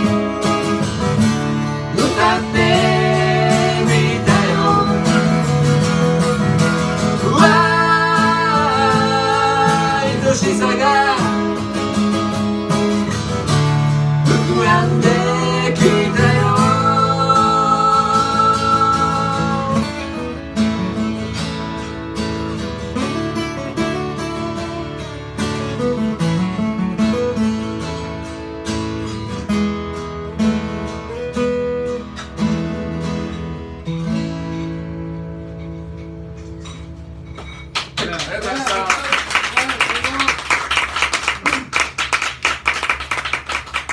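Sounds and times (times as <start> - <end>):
acoustic guitar strumming: 0.0 - 38.2.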